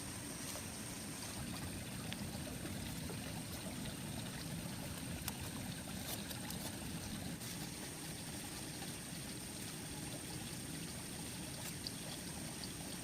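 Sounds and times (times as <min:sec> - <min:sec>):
running water flowing: 0:00.0 - 0:13.0.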